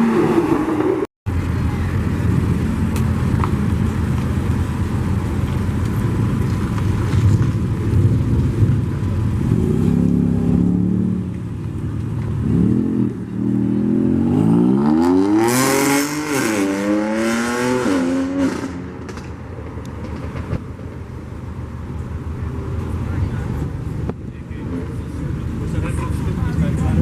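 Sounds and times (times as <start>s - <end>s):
car engine revving and accelerating: 7.0s - 11.4s, 12.4s - 19.3s.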